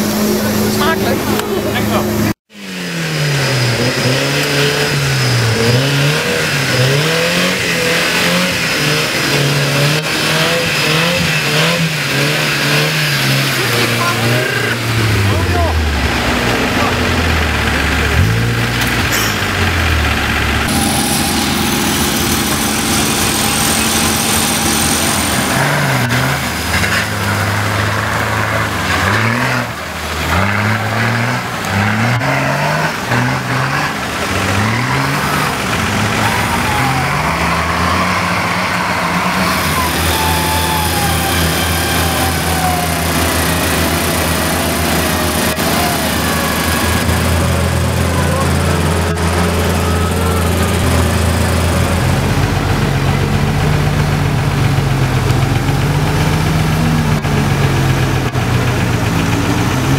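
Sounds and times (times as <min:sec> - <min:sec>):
off-road engines revving hard: 0:00.0 - 0:59.9
wavering whine: 0:20.6 - 0:28.8.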